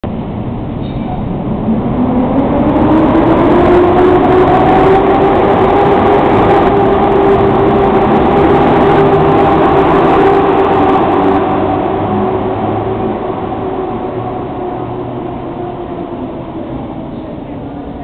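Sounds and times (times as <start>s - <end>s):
electric locomotive whine: 0.1s - 18.0s.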